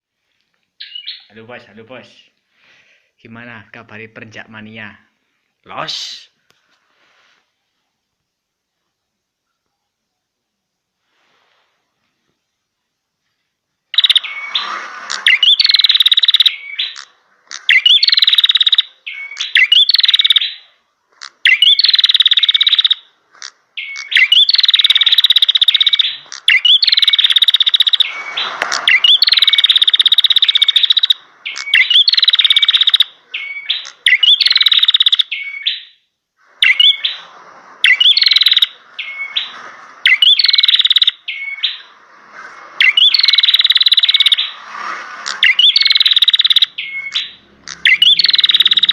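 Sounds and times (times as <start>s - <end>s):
bird buzzy trilling song: 0.8s - 1.6s, 13.9s - 48.9s.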